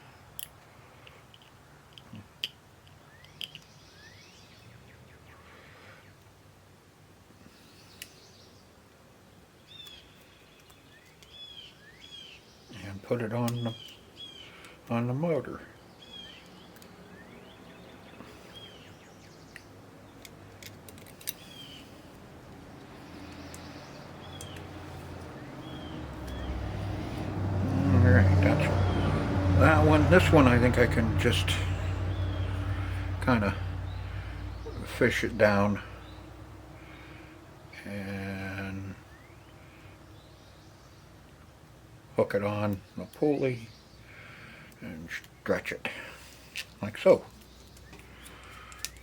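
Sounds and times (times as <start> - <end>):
faint bird chirps: 3.0 - 6.2
light sharp clicks: 19.2 - 25.3.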